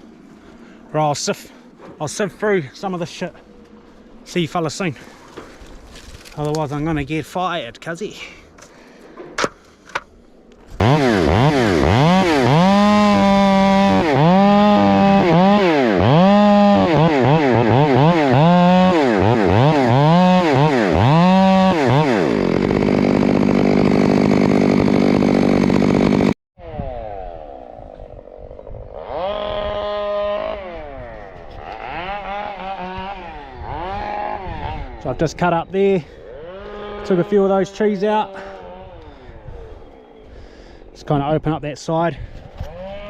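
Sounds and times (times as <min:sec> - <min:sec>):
chainsaw revving: 0:10.7 - 0:35.2, 0:36.0 - 0:39.5, 0:42.6 - 0:43.0.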